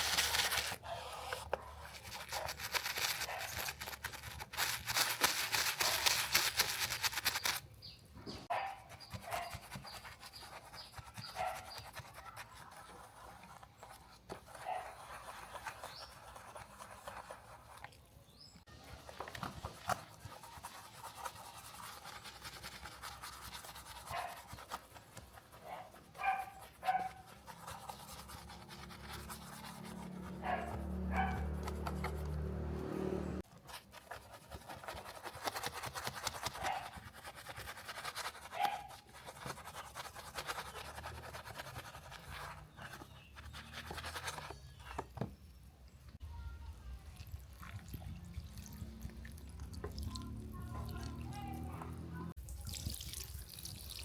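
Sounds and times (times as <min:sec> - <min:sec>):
brush scrubbing hard surface: 0:00.0 - 0:07.6, 0:08.4 - 0:45.1
low motor hum: 0:29.8 - 0:33.4.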